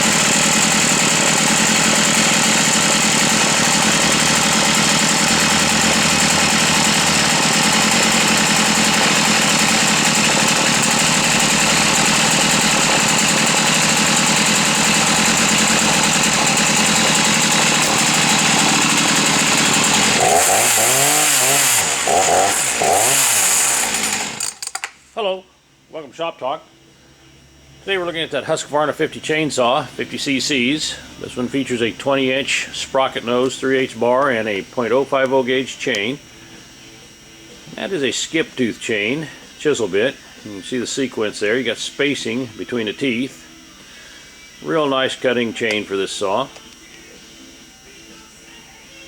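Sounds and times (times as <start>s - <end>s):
chainsaw engine revving: 0.0s - 24.9s.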